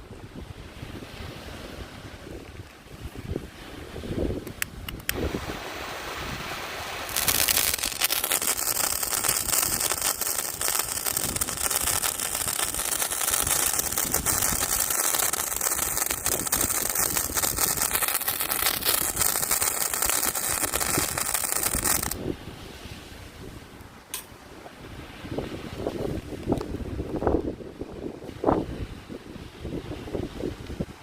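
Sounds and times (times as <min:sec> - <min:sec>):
firework hissing and crackling: 0:05.1 - 0:22.2.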